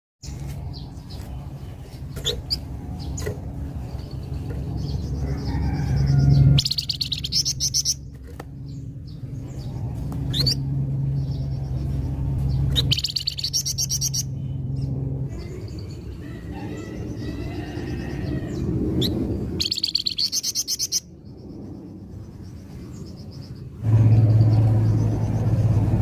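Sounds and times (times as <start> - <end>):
steady low hum: 0.2 - 26.0
steady low rumble: 0.2 - 26.0
songbird trilling and whistling: 4.8 - 8.0, 10.3 - 10.6, 12.5 - 14.5, 16.7 - 21.4.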